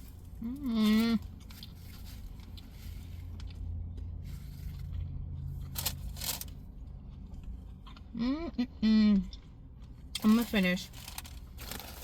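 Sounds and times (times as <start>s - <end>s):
chewing: 6.9s - 8.4s
wrapper crinkling: 10.2s - 12.0s.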